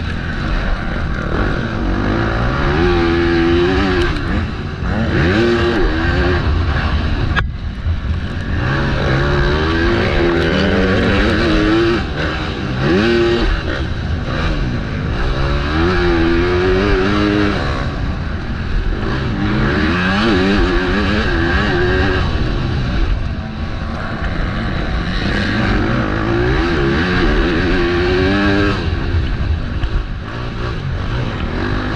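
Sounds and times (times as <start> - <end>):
motocross bike engine revving: 0.0 - 31.9.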